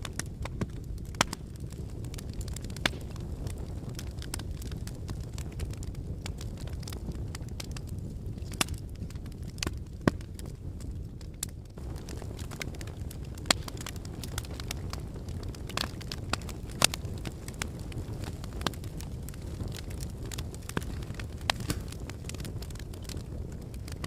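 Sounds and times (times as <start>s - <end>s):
low rumble of flames: 0.0s - 24.0s
wood crackling and popping: 0.0s - 24.0s.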